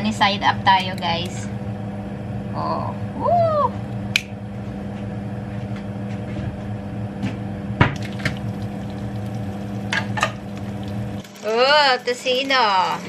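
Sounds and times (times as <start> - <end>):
low hum: 0.0 - 11.3
egg sizzling in a pan: 8.0 - 13.0.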